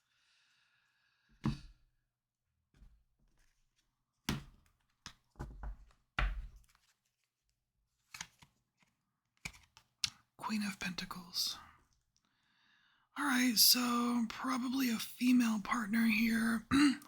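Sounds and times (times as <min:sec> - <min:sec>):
cards tapping and rustling: 0:04.3 - 0:07.3, 0:08.1 - 0:10.3.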